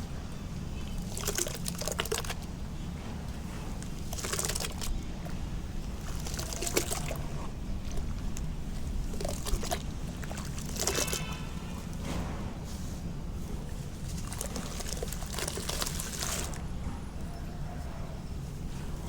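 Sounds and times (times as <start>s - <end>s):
wet sand cement crumbling: 3.6s - 16.7s.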